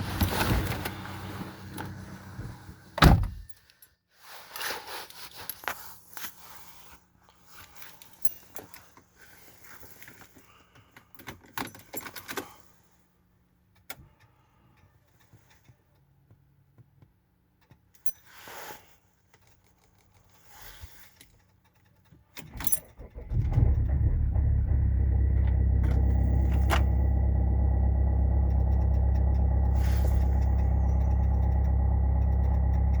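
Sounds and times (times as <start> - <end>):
diesel engine starting: 0.0 - 2.9, 22.5 - 33.0
diesel engine idling: 23.0 - 33.0.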